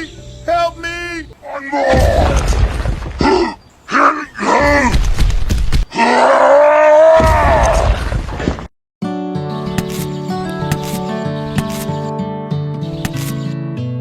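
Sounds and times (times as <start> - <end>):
person groaning and wailing: 1.4 - 2.4, 3.2 - 5.0, 5.9 - 7.9.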